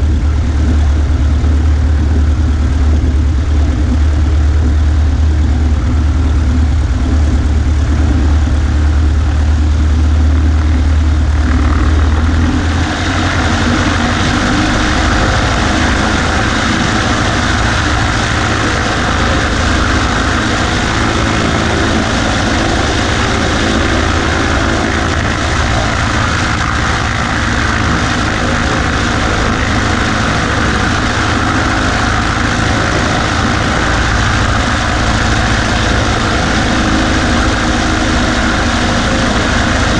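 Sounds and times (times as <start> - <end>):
airplane engine and propeller: 0.0 - 39.9.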